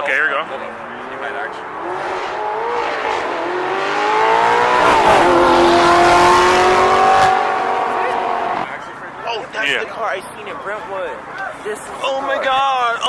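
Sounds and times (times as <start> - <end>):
car engine accelerating hard: 0.6 - 8.7.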